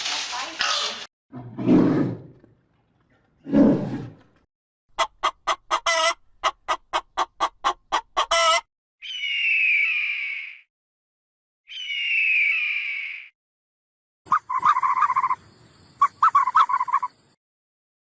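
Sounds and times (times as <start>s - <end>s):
bird calls: 9.0s - 10.6s, 11.7s - 13.3s, 14.3s - 17.4s.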